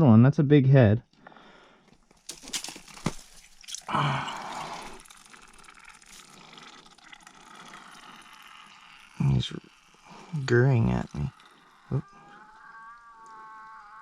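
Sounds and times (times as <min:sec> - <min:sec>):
water dripping: 0:02.1 - 0:12.0.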